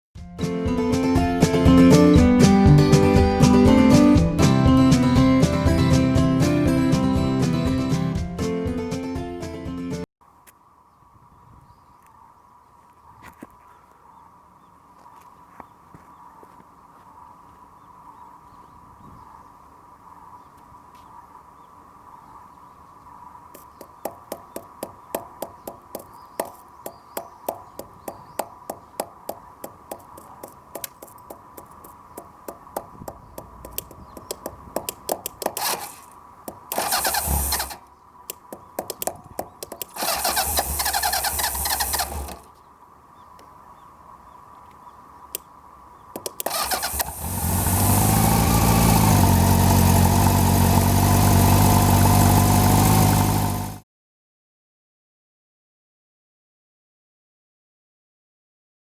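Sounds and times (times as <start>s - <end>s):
starter motor cranking: 35.4s - 36.1s, 36.7s - 37.9s, 39.7s - 42.5s, 46.4s - 53.8s
engine running: 35.5s - 37.9s, 39.7s - 42.5s, 46.4s - 53.8s.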